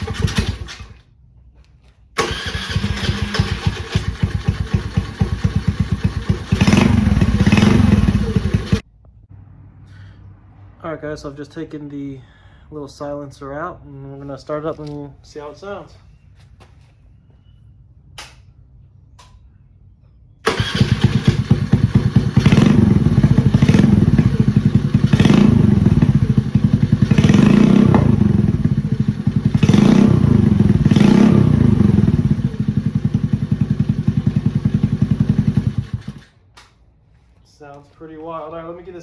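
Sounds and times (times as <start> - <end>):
small motorcycle engine revving: 0.0 - 1.0, 2.2 - 8.8, 20.4 - 36.3.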